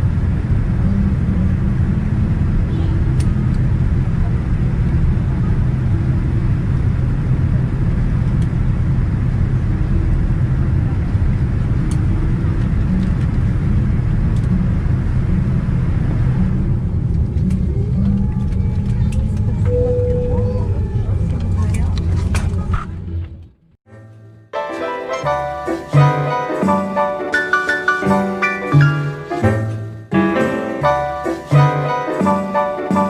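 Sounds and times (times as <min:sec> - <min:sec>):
aircraft cabin rumble: 0:00.0 - 0:23.8.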